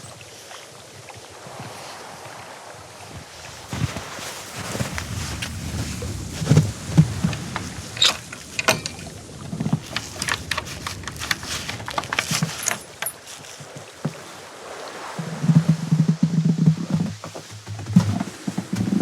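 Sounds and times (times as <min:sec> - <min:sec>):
wind hiss: 0:01.3 - 0:16.2
footsteps crunching in snow: 0:03.7 - 0:08.6
sharp clicks: 0:09.8 - 0:13.1.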